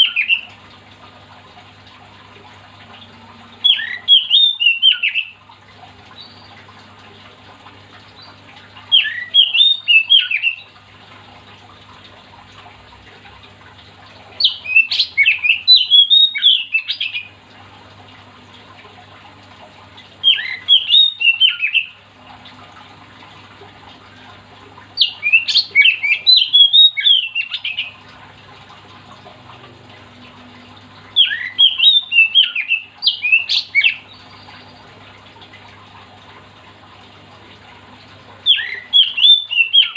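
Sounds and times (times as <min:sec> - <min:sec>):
bird singing whistled phrases: 0:00.0 - 0:00.5, 0:03.6 - 0:05.4, 0:08.2 - 0:10.7, 0:14.4 - 0:17.3, 0:20.2 - 0:22.0, 0:25.0 - 0:28.0, 0:31.2 - 0:34.9, 0:38.5 - 0:39.9.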